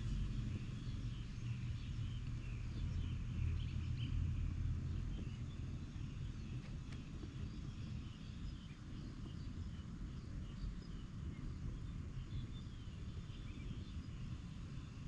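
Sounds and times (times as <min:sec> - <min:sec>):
steady low rumble: 0:00.0 - 0:15.0
small birds chirping: 0:00.1 - 0:15.0.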